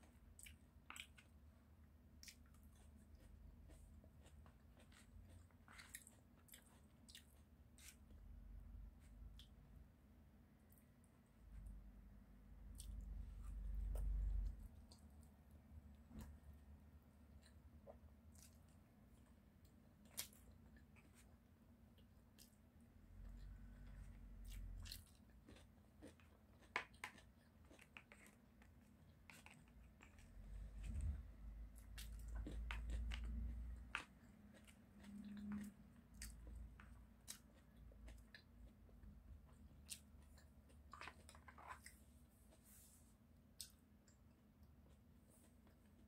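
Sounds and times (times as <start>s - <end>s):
chewing and biting: 2.2s - 8.3s, 23.2s - 42.1s.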